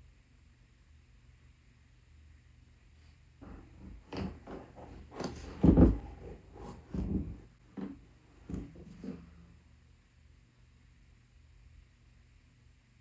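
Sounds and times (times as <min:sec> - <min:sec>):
boot knocking and thudding: 0:03.4 - 0:09.2
rustling: 0:03.4 - 0:09.5.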